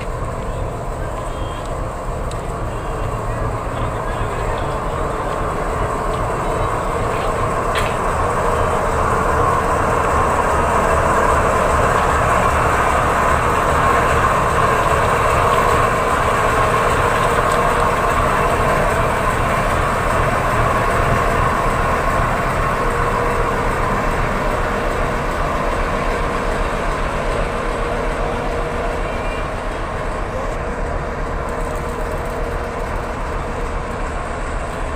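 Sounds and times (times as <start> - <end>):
train rumbling: 0.0 - 34.9.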